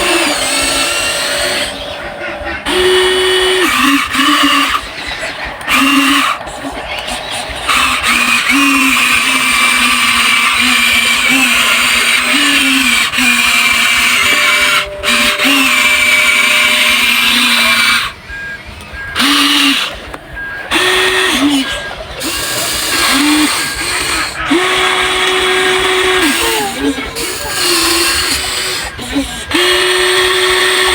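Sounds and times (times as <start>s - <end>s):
small electric motors whining: 0.0s - 30.9s.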